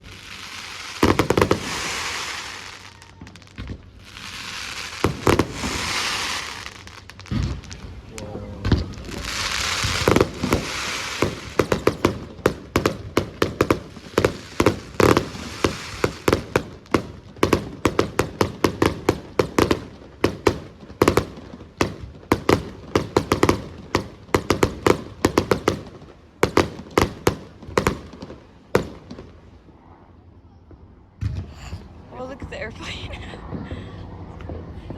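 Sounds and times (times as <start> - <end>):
fireworks bursting with bangs: 0.0 - 29.7
fireworks crackling hiss: 0.0 - 29.7.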